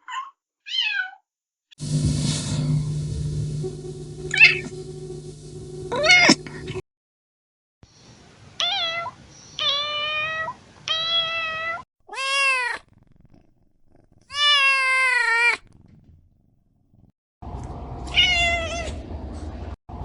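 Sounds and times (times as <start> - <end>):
kitten meowing: 10.9 - 12.8, 14.3 - 15.6.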